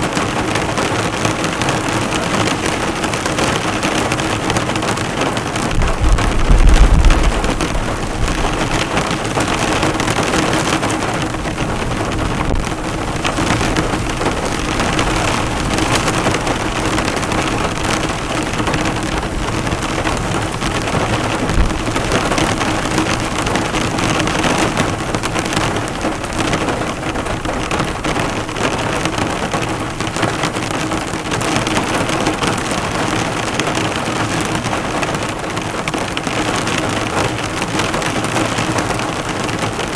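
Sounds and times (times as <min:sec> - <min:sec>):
heavy rain on a car: 0:00.0 - 0:39.9
short low rumble: 0:05.8 - 0:09.0.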